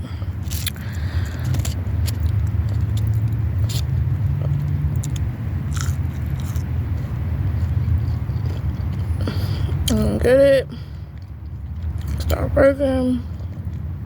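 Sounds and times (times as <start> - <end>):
chewing and biting: 0.4 - 10.0, 11.0 - 12.4, 13.2 - 14.0
crunchy clicks: 4.5 - 6.7.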